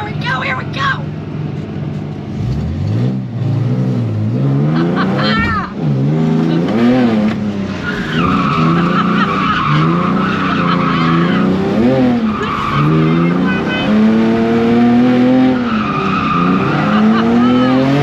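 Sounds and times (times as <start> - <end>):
car engine revving: 0.0 - 18.0
tyres squealing: 7.8 - 14.6, 15.2 - 18.0.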